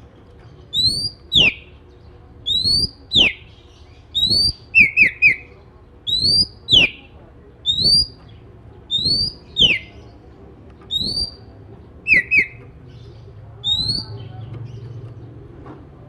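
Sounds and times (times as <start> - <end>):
bird whistled calls: 0.7 - 1.7, 2.4 - 3.5, 4.1 - 5.5, 6.1 - 8.2, 8.9 - 10.0, 10.9 - 11.4, 12.1 - 12.6, 13.6 - 14.3.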